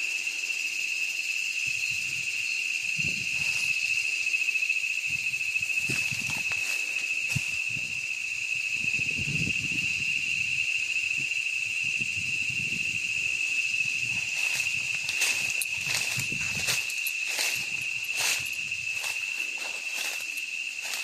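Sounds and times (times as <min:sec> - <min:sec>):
high insect drone: 0:00.0 - 0:21.0
footsteps in leaf litter: 0:05.8 - 0:07.5, 0:14.2 - 0:21.0.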